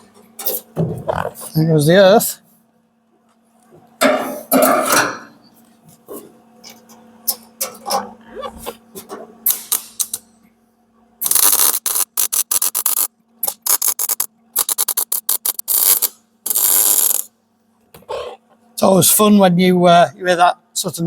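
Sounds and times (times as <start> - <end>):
steady hum: 0.0 - 21.0
welder arc crackling: 11.2 - 17.3.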